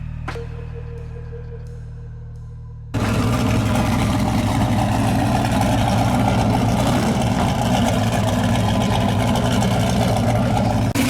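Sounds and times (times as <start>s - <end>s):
loud race car engines idling: 3.0s - 11.0s.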